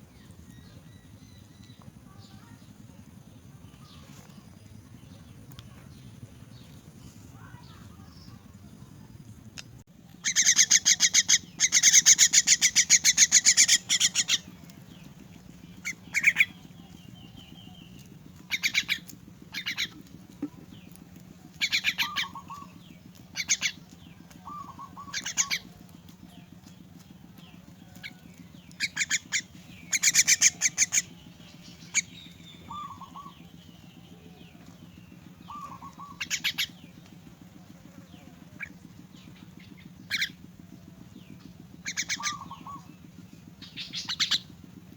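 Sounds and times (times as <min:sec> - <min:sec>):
low hum: 0:00.0 - 0:44.9
bird chick calling: 0:10.2 - 0:14.7, 0:15.8 - 0:17.8, 0:18.4 - 0:20.1, 0:21.5 - 0:25.9, 0:27.7 - 0:34.8, 0:35.4 - 0:36.9, 0:39.6 - 0:40.4, 0:41.8 - 0:43.0, 0:43.6 - 0:44.6.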